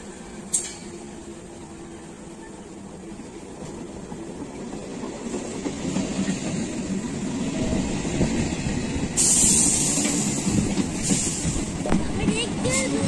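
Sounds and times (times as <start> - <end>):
train wheels rumbling and clattering: 2.7 - 13.0
sudden loud hiss: 9.1 - 11.9.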